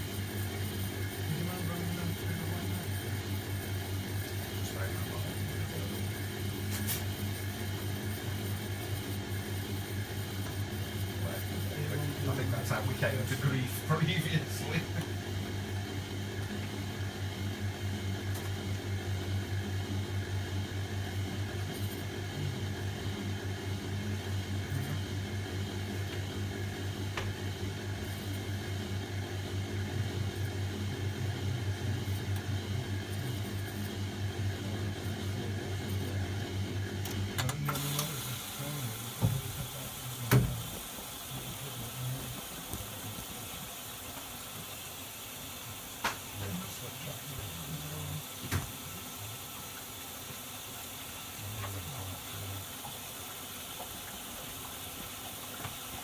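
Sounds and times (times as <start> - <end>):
washing machine humming: 0.0 - 56.0
water hissing: 37.7 - 56.0.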